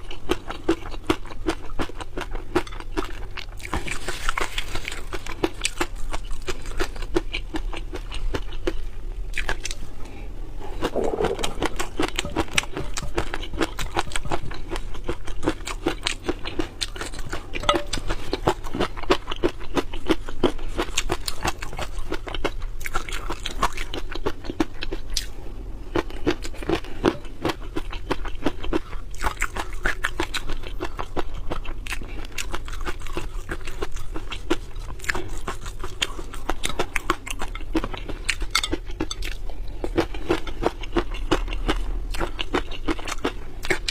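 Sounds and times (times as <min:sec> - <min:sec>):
person chewing and crunching: 0:00.0 - 0:43.9.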